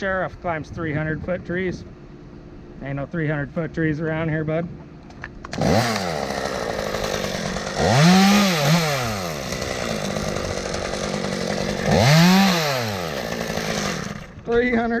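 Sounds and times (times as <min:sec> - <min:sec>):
chainsaw revving: 0:05.4 - 0:14.4.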